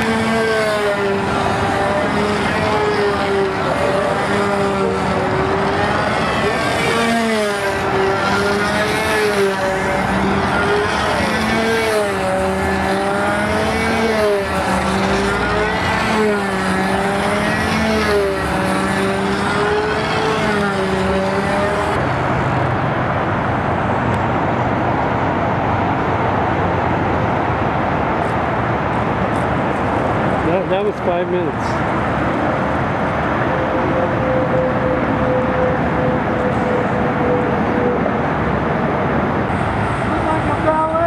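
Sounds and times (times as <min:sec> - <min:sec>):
model airplane engine running: 0:00.0 - 0:22.4
steady background noise: 0:00.0 - 0:41.0.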